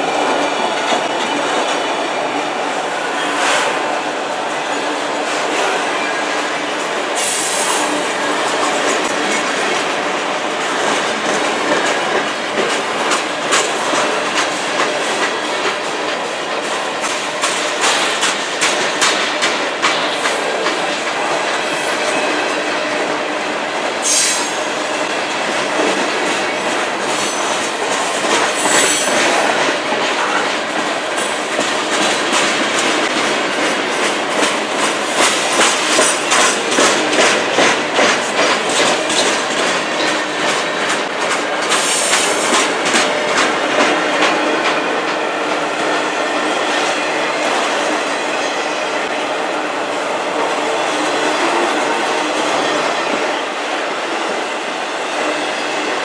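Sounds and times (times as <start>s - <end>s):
wheels clacking over rail joints: 24.3s - 45.7s.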